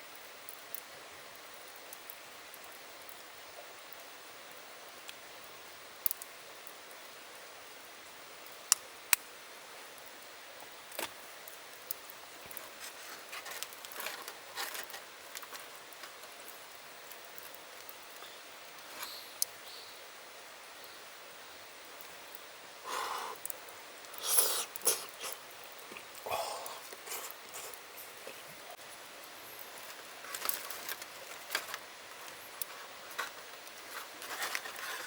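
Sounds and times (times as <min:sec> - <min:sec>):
steady hiss: 0:00.0 - 0:35.0
small crackles: 0:00.1 - 0:35.0.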